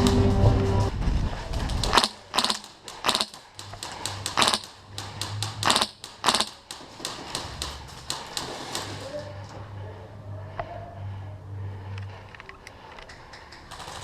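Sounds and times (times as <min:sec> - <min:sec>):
airsoft gun shots: 0:01.8 - 0:09.1.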